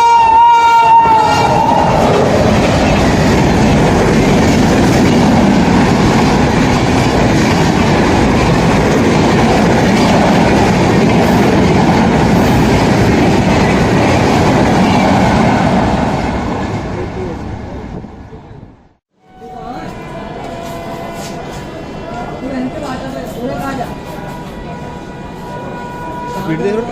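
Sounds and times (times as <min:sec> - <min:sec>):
train horn dropping in pitch: 0:00.0 - 0:02.0, 0:19.2 - 0:21.8
train passing at speed: 0:00.0 - 0:26.9.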